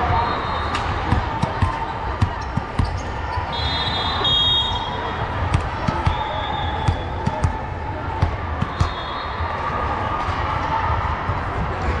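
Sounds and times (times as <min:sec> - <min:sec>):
crowd voices: 0:00.0 - 0:12.0
volleyball thuds: 0:01.0 - 0:03.0, 0:06.8 - 0:09.0.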